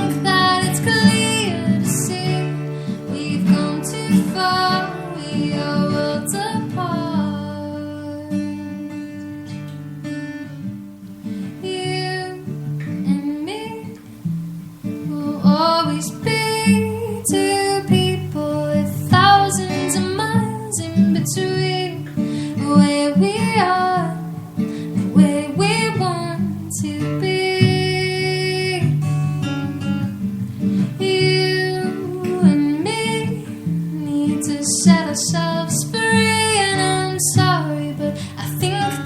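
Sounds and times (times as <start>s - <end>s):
woman singing: 0.0s - 9.6s, 11.2s - 29.2s, 30.6s - 39.0s
acoustic guitar strummed: 0.0s - 39.0s.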